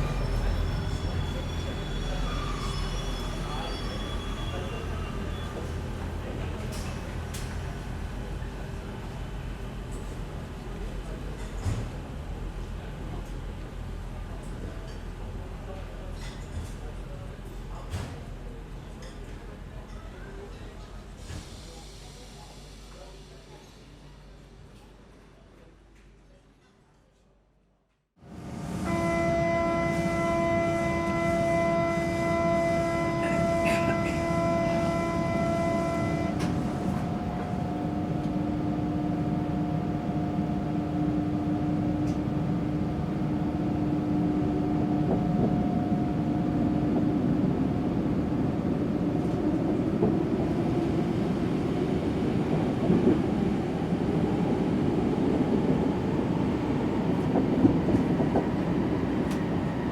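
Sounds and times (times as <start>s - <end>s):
train pitched tone: 0.0s - 6.0s, 28.8s - 50.6s
lower train tone: 0.0s - 24.3s, 28.2s - 59.9s
metro train running rumble: 0.0s - 26.3s, 28.2s - 59.9s.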